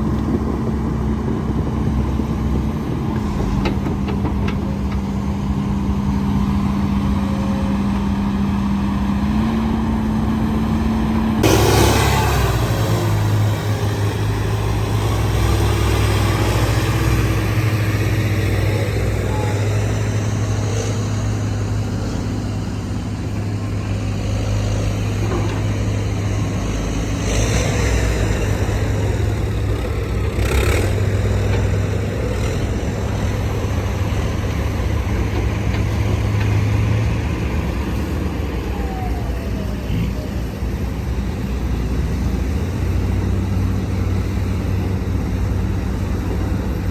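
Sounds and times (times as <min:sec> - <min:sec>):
diesel machinery engine drone: 0:00.0 - 0:46.9
brief loud machinery noises: 0:11.4 - 0:14.8.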